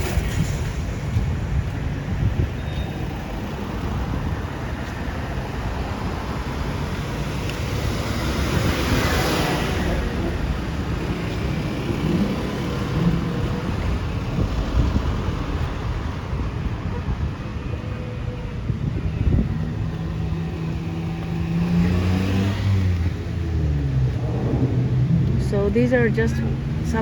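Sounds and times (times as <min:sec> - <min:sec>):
road traffic rumble: 0:00.0 - 0:27.0
vehicle passing: 0:18.5 - 0:27.0.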